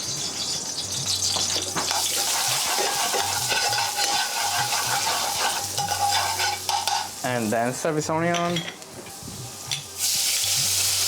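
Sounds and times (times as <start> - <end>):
garlic sizzling in oil: 0.0 - 8.1, 9.1 - 11.0
utensil knocking pan: 1.8 - 7.2.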